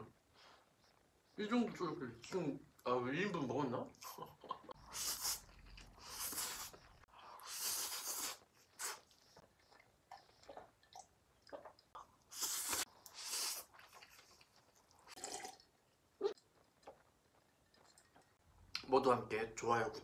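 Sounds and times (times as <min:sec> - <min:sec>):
wet chewing and mouth clicks: 0:04.6 - 0:18.9
noodles slurped: 0:04.8 - 0:18.4.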